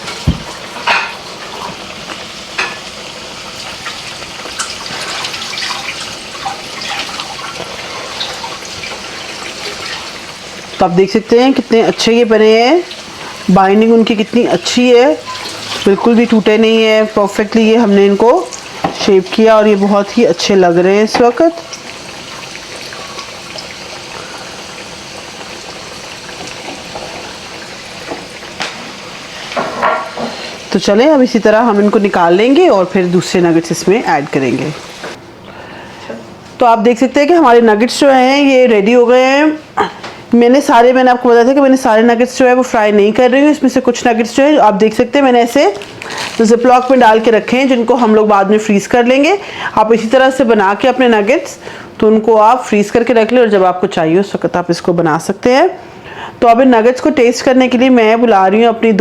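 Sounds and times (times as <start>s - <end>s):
chicken deep-frying in oil: 0.0s - 35.2s, 41.8s - 53.6s.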